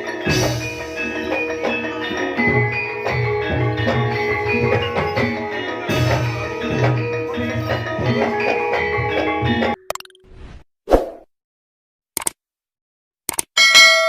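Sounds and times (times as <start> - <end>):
gongs and metallophones ringing: 0.0 - 9.8, 13.6 - 14.0.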